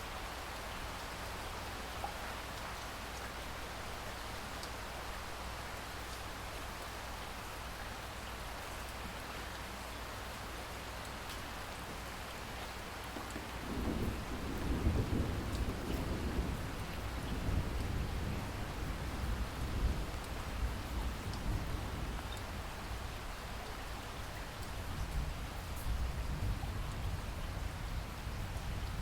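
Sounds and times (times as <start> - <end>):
rain falling: 0.0 - 29.0
rolling thunder rumble: 13.4 - 22.2.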